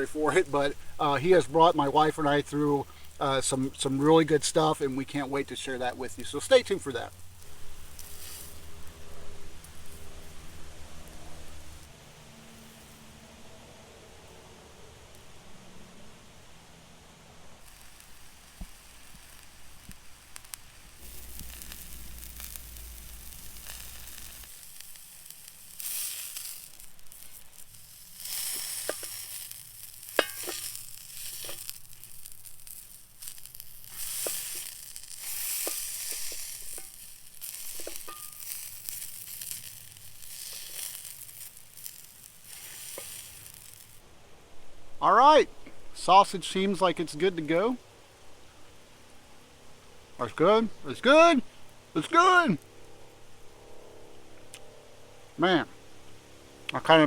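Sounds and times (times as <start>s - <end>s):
sausage sizzling in a skillet: 0.0s - 11.9s, 17.6s - 44.0s
sharp pops and cracks: 6.1s - 8.7s, 17.6s - 44.0s.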